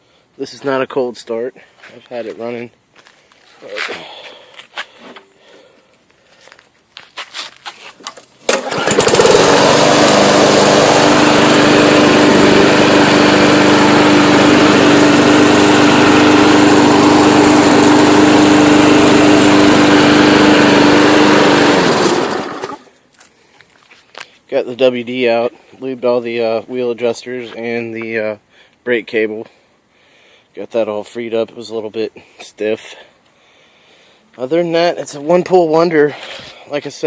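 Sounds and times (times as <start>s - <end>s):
lawn mower engine running: 8.0s - 22.9s.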